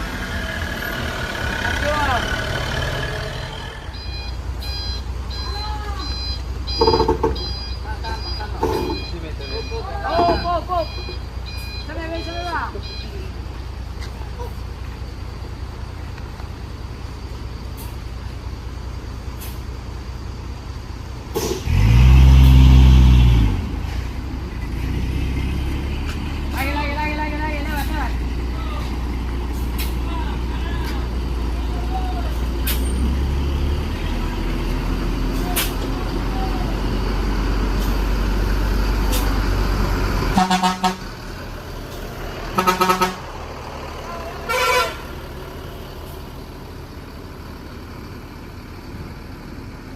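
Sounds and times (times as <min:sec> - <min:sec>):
truck engine revving: 0:00.0 - 0:05.5, 0:21.2 - 0:49.9
vehicle horn short toots: 0:40.4 - 0:41.0, 0:42.6 - 0:43.2, 0:44.5 - 0:45.0.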